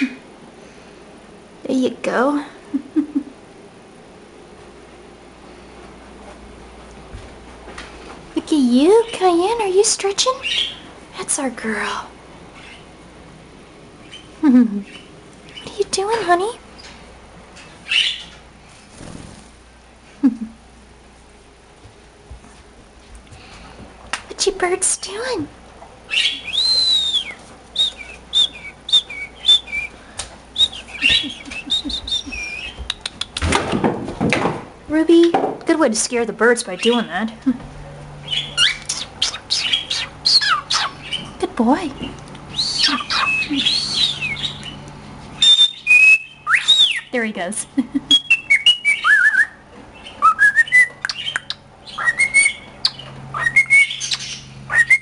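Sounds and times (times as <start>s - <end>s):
cockatiel whistling: 26.1s - 29.9s, 30.6s - 32.9s, 42.5s - 44.8s, 45.4s - 47.1s, 48.1s - 55.0s
sharp bird clicks: 32.0s - 33.5s, 38.6s - 41.2s, 51.0s - 52.0s.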